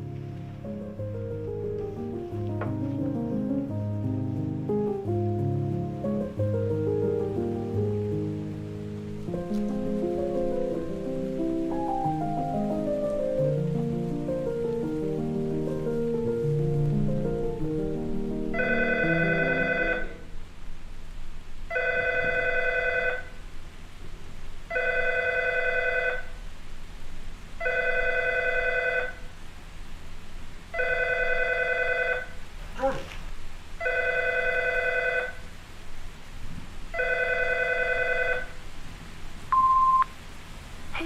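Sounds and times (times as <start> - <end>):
telephone ringing: 18.6 - 20.2, 21.8 - 23.2, 27.6 - 29.1, 30.8 - 32.2, 33.8 - 35.3, 37.0 - 38.4.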